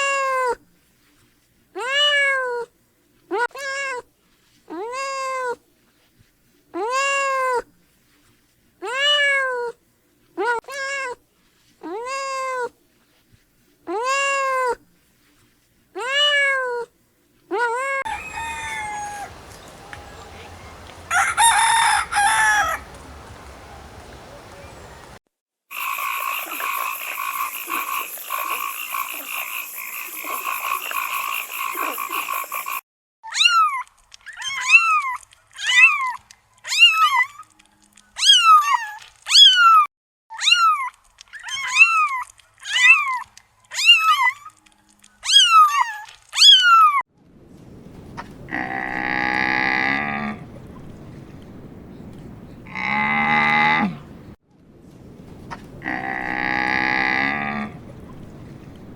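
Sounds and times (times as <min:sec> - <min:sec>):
cattle mooing: 0:18.1 - 0:25.1, 0:48.5 - 0:50.5, 0:52.7 - 0:54.2, 0:55.8 - 0:57.9
downward sliding animal calls: 0:18.1 - 0:25.2
high pulsing animal trill: 0:25.7 - 0:32.8.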